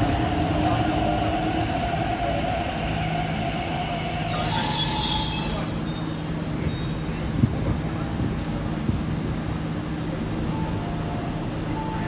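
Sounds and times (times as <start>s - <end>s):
train wheels rumbling on rail: 0.0s - 10.5s
high-pitched wheel squeal: 4.2s - 7.0s.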